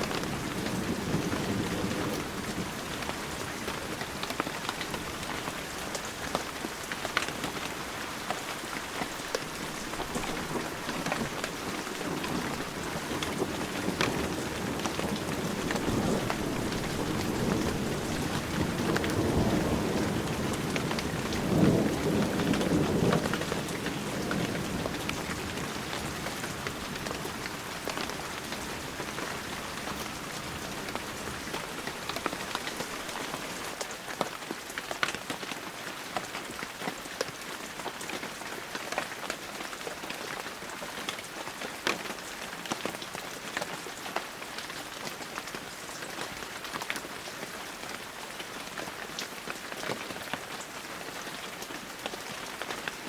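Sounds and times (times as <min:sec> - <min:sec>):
thunder rumbling: 0:00.0 - 0:06.6, 0:07.3 - 0:33.8
heavy rain falling: 0:00.0 - 0:53.0.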